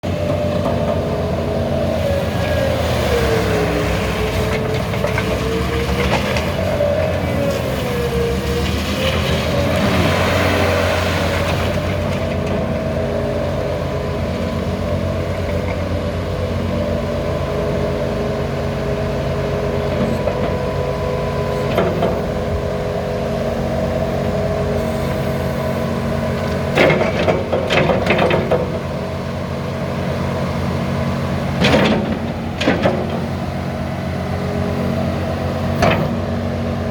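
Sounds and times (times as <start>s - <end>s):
diesel engine running: 0.0s - 36.9s
loud machine clunks: 31.6s - 33.4s, 35.7s - 36.2s.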